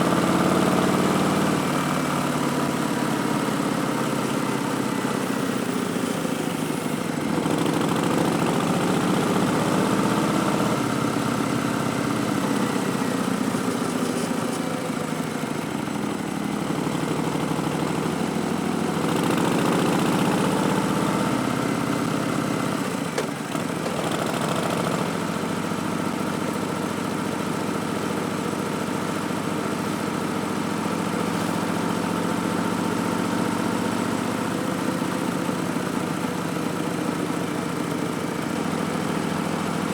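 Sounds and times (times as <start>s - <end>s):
motorcycle engine revving: 0.0s - 26.5s.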